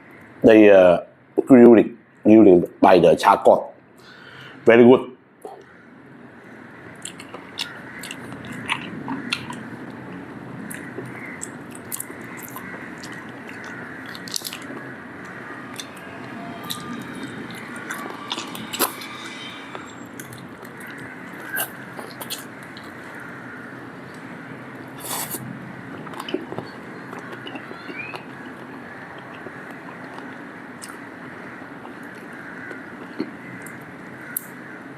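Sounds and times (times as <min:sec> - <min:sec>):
person chewing food: 0:07.0 - 0:16.0, 0:16.6 - 0:23.3, 0:24.1 - 0:33.9.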